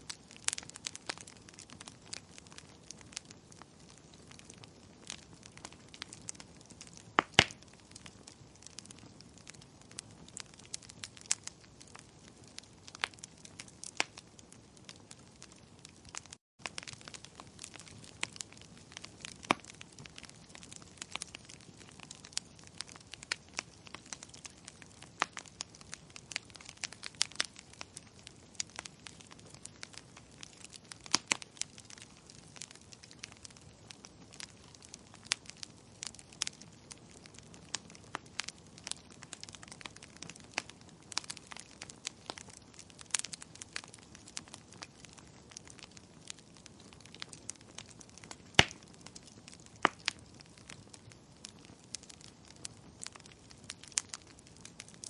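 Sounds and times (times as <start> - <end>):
soft steady hiss: 0.0 - 12.8
firewood crackling and popping: 0.0 - 55.0.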